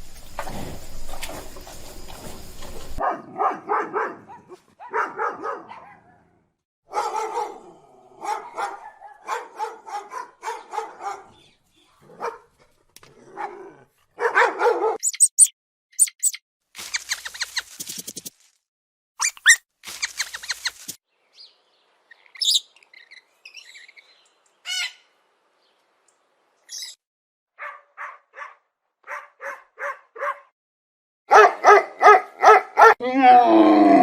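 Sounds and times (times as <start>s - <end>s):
dog barking: 3.0s - 11.4s, 12.0s - 12.6s, 13.3s - 15.0s, 27.6s - 30.5s, 31.3s - 33.0s
high thin chirps: 15.0s - 18.4s, 19.2s - 21.0s.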